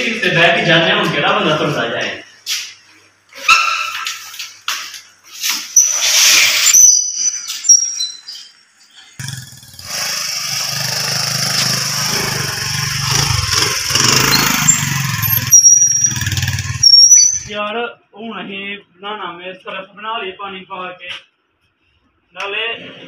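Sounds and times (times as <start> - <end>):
motorcycle engine running: 9.2 - 17.5
short high chirps: 14.1 - 17.5.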